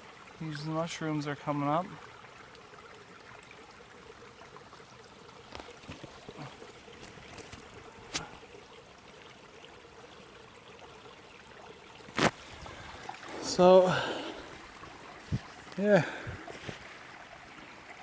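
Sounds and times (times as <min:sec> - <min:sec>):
stream flowing: 0:00.0 - 0:18.0.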